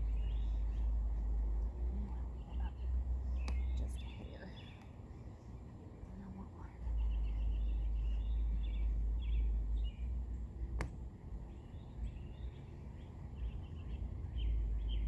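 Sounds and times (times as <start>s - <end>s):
low rumble: 0.0s - 15.0s
small birds chirping: 0.0s - 15.0s.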